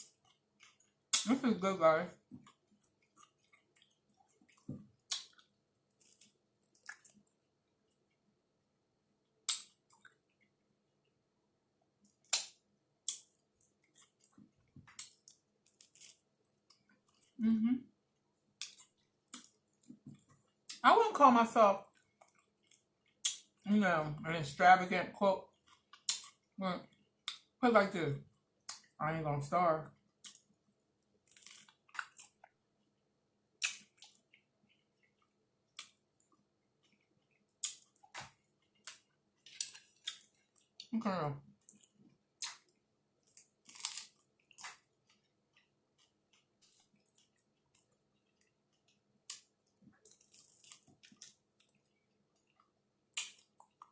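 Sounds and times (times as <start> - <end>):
chewing with wet mouth smacks: 2.3 - 8.2, 9.4 - 10.6, 12.0 - 17.4, 18.6 - 20.8, 21.8 - 23.6, 25.4 - 27.5, 33.6 - 40.9, 41.5 - 53.9
crunching bites of taco: 2.4 - 7.4, 12.0 - 17.4, 25.5 - 26.6, 29.9 - 32.6, 33.5 - 40.9, 41.5 - 53.9.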